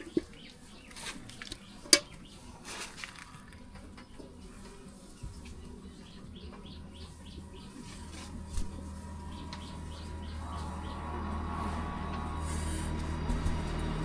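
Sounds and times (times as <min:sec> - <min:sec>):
low steady hum: 0:03.3 - 0:14.0
small bird chirping: 0:05.6 - 0:11.2.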